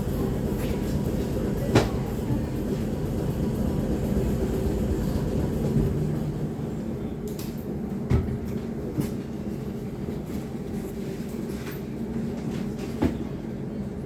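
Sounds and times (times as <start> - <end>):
train rumbling inside carriage: 0.0 - 14.0.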